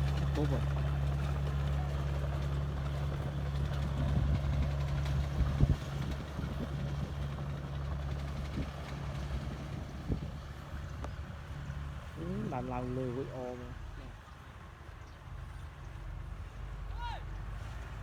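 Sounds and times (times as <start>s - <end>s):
diesel engine running: 0.0s - 14.1s.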